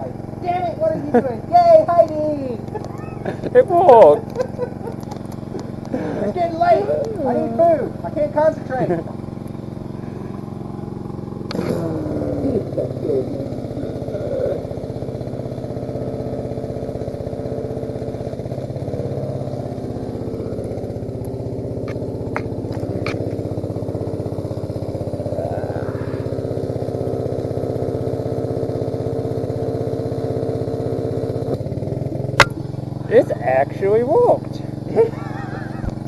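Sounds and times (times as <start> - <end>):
welding machine engine running: 0.0 - 36.0
sharp clicks: 4.2 - 6.0.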